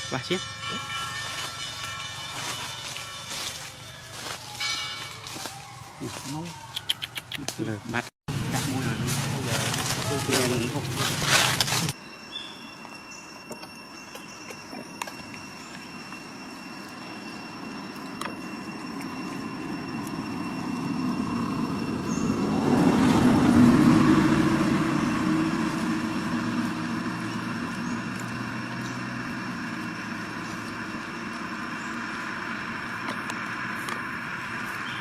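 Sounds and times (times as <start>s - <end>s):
vehicle passing by: 8.3s - 11.9s, 20.6s - 35.0s.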